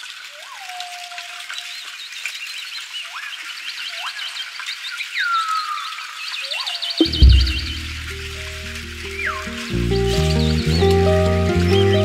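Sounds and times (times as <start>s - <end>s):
faint hiss: 7.0s - 10.5s.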